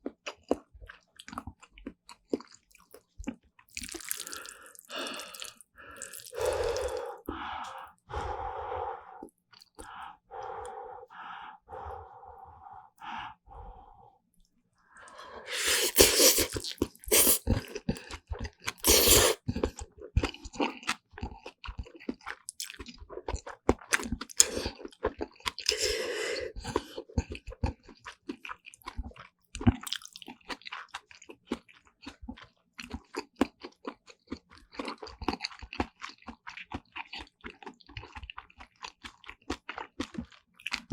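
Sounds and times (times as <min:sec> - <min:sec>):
food crunching: 0:00.0 - 0:07.8, 0:15.5 - 0:25.8
close chewing of noodles: 0:00.0 - 0:14.0, 0:15.0 - 0:40.9.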